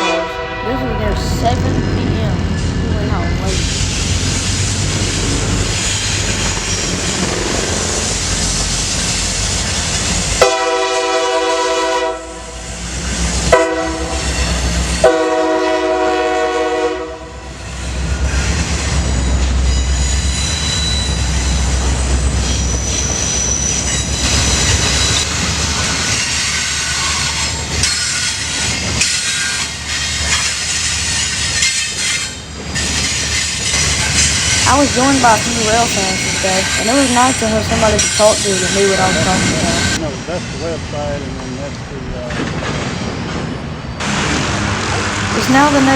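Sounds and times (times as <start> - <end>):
train horn blasts: 0.0 - 1.8, 10.4 - 12.8, 13.4 - 17.6
diesel locomotive rumbling: 0.0 - 45.9
train wheel clatter: 1.4 - 10.8, 17.7 - 45.7.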